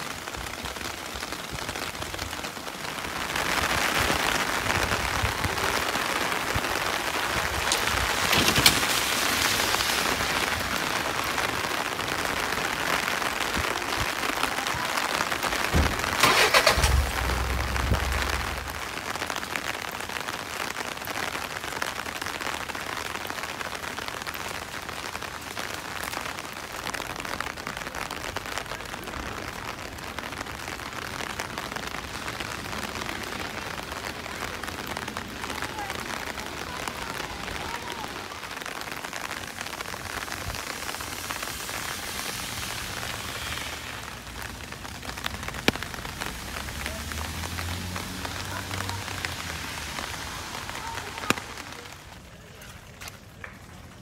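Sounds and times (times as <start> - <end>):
rain on pavement: 0.0 - 54.0
low rumble: 15.8 - 19.1.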